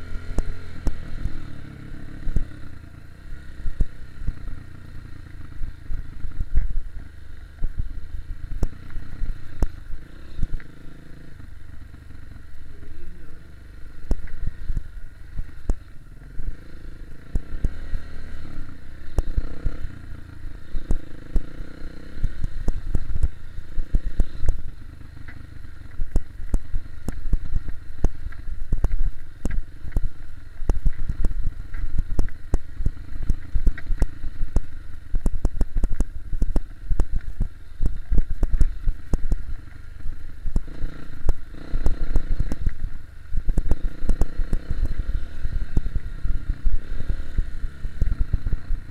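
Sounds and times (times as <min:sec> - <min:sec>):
dirt bike engine rumbling: 0:00.0 - 0:48.9.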